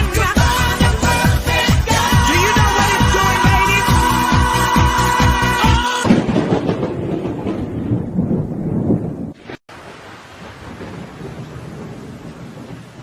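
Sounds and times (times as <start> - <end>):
thunder rumbling: 5.7 - 13.0
steady rain hiss: 9.4 - 13.0.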